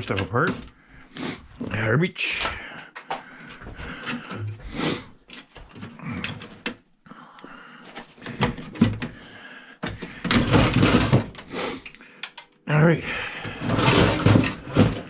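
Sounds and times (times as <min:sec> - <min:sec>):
metal and plastic pieces clicking: 0:11.8 - 0:12.6
loud clatter: 0:13.6 - 0:15.0.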